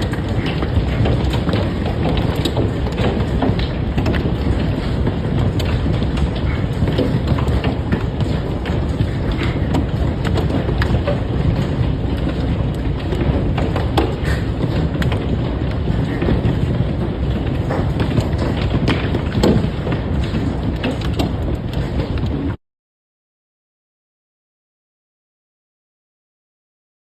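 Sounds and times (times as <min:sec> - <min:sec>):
hailstones striking hard surfaces: 0:00.0 - 0:22.4.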